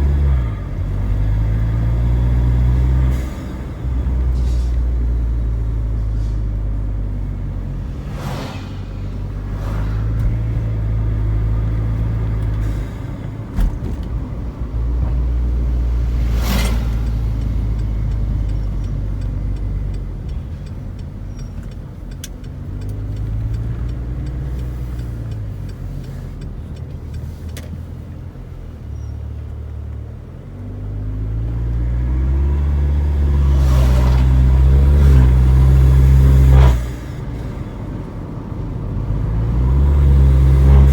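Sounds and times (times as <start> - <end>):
car engine revving: 0.0 - 21.2, 30.8 - 37.6, 38.6 - 40.9.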